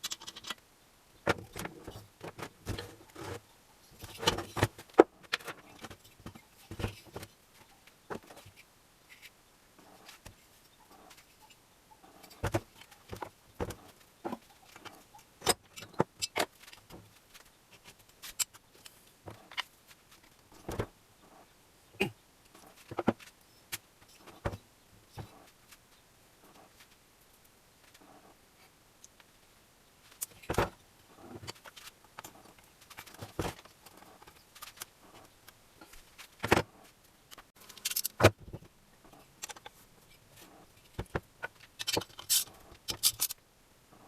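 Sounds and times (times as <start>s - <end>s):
tools and metal parts clinking: 0.0s - 0.6s, 37.6s - 38.2s, 40.8s - 43.4s.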